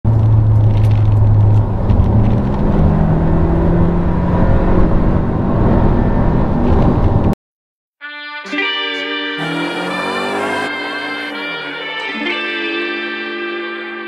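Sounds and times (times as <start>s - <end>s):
road noise: 0.1s - 7.4s, 9.4s - 12.4s
car engine drone: 9.4s - 12.4s.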